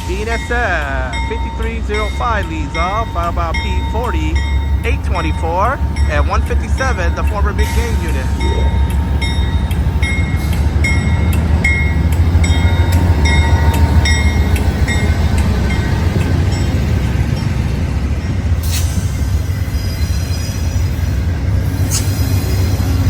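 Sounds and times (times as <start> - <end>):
train rumble: 0.0 - 23.0
brief hiss: 18.6 - 19.0, 21.9 - 22.2
high-pitched wheel squeals: 18.7 - 23.0.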